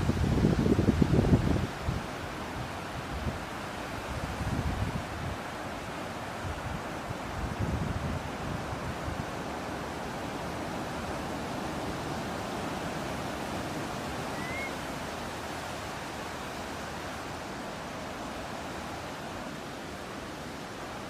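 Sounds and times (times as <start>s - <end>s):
ocean surf and breeze: 0.0s - 21.0s
faint rising bird chirp: 14.3s - 14.9s.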